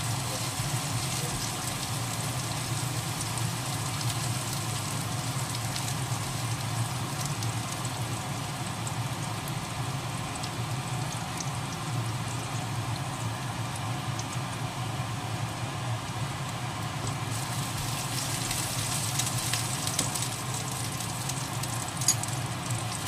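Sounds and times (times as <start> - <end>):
oil sizzling in a wok: 0.0 - 23.0
sharp pops of frying food: 17.0 - 23.0.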